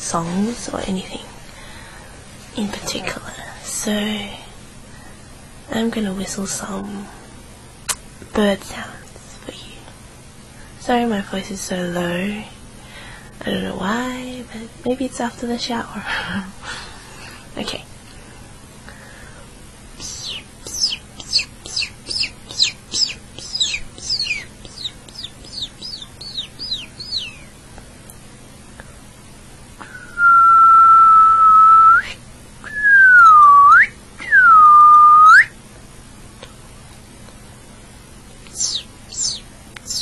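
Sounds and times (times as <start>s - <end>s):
person whistling bird calls: 29.8s - 35.5s, 38.6s - 40.0s.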